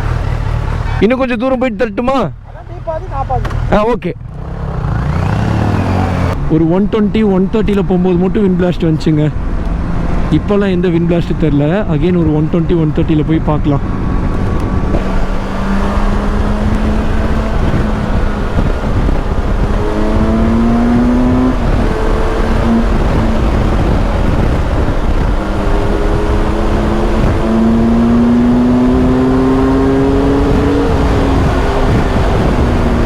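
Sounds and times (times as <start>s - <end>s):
motorcycle engine pulling hard: 3.1s - 6.6s, 13.7s - 33.0s
wind rush: 12.1s - 33.0s.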